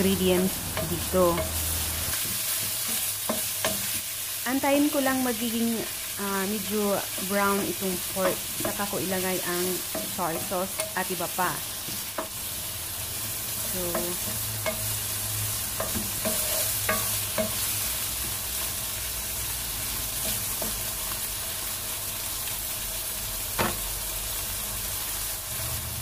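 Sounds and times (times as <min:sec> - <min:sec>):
food sizzling in hot oil: 0:00.0 - 0:26.0
wooden spatula knocking on pan: 0:09.8 - 0:11.0.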